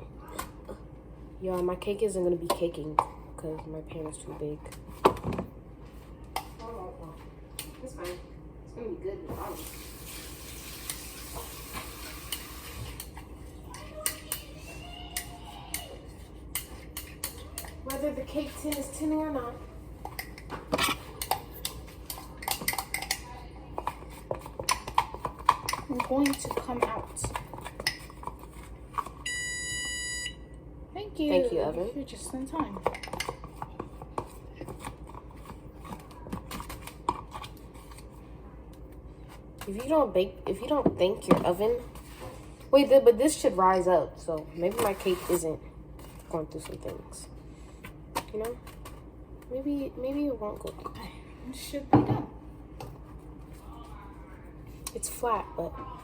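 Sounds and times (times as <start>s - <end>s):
kitchen pans and utensils clinking: 20.1s - 28.4s.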